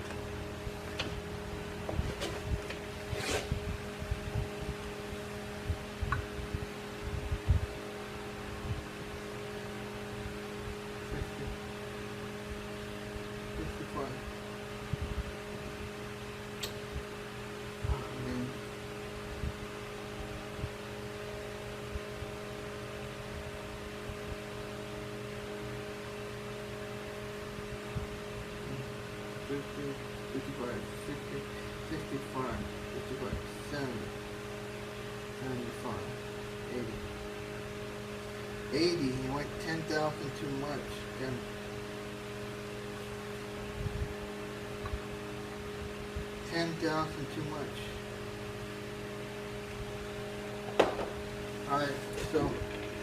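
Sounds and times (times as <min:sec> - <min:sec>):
electrical hum: 0:00.0 - 0:53.0
soft low thumps: 0:05.6 - 0:07.8.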